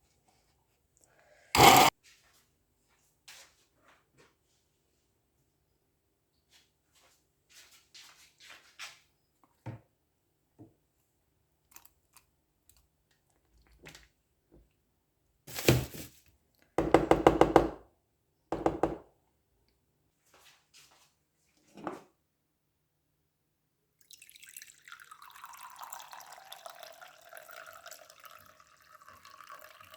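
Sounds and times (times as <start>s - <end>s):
knock: 16.8s - 17.8s, 18.6s - 19.0s.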